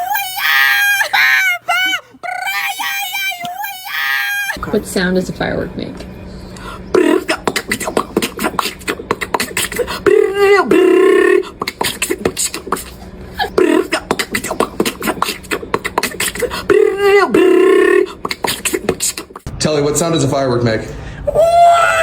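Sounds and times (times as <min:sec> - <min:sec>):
mouth imitating fireworks beatbox-style: 0:06.9 - 0:19.5.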